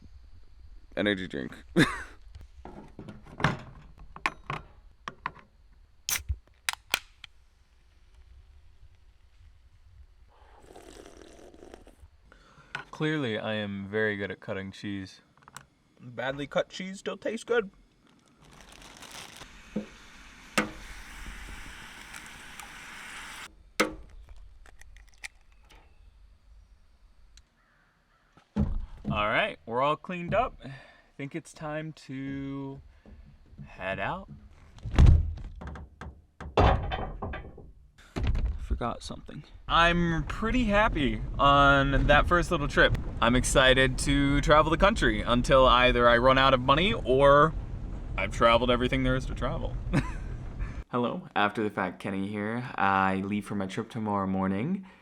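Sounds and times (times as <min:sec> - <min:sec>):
rushing hiss: 0:19.3 - 0:23.5
sharp knocks: 0:23.8 - 0:24.1, 0:33.0 - 0:38.6
small objects clicking and knocking: 0:23.8 - 0:26.0.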